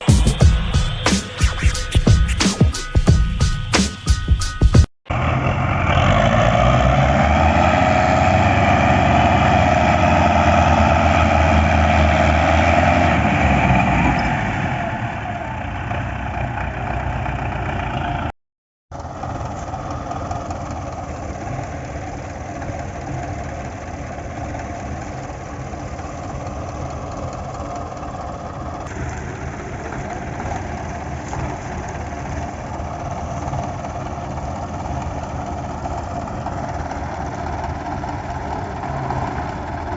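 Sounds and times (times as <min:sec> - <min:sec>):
tractor diesel engine running: 0:19.0 - 0:39.9.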